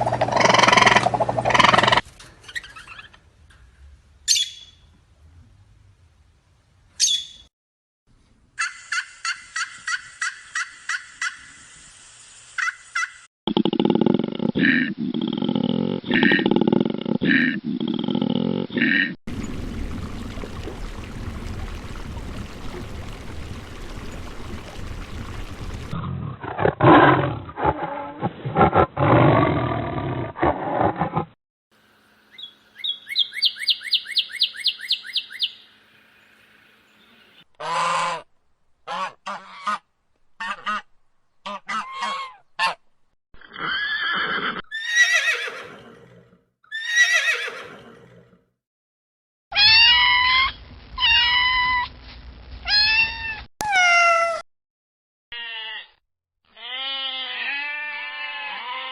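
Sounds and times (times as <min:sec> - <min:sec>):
harsh animal calls: 0:00.0 - 0:02.0, 0:55.3 - 0:58.9
falling animal cries: 0:49.5 - 0:52.0, 0:52.6 - 0:54.4, 0:55.3 - 0:58.9.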